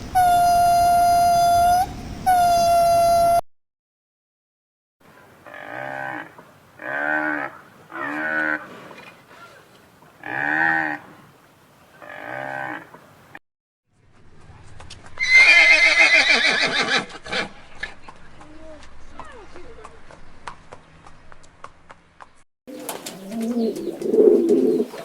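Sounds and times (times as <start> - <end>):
horse whinny: 15.2 - 17.5.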